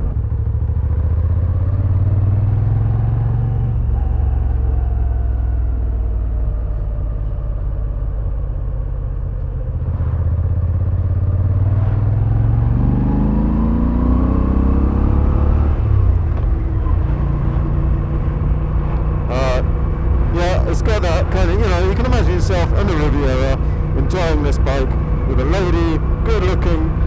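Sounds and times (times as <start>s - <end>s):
motorcycle engine revving: 9.7s - 27.0s.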